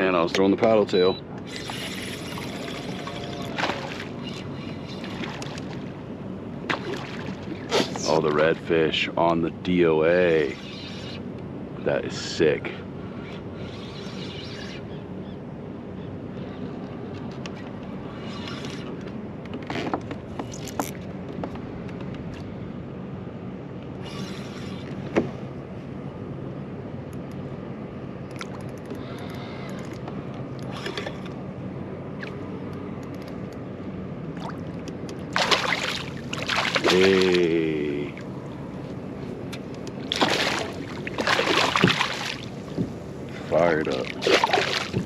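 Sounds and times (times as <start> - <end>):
small splashes: 3.1 - 4.2, 6.7 - 8.0, 34.3 - 37.7, 40.0 - 45.0
water sloshing against kayak hull: 6.6 - 8.1, 34.4 - 37.5, 39.5 - 45.0.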